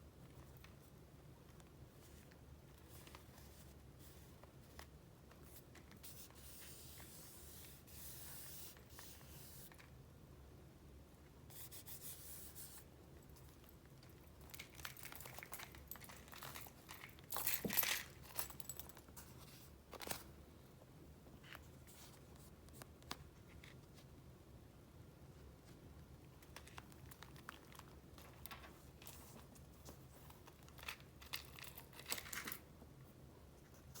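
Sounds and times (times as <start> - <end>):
paper crinkling and rustling: 0.2 - 6.8, 14.2 - 20.3, 26.4 - 32.6.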